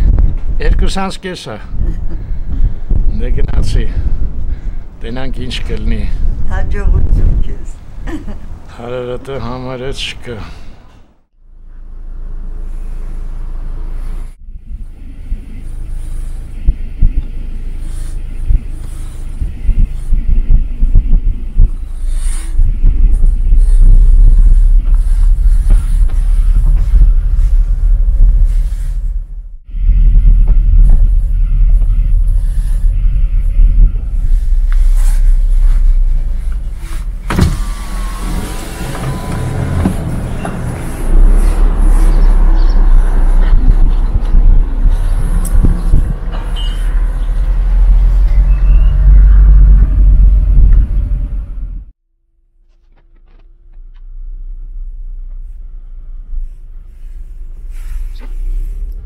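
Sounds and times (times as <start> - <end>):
gusty wind buffeting microphone: 0.0 - 8.7, 14.6 - 38.2, 39.0 - 51.9
thin whining tone: 29.9 - 50.6.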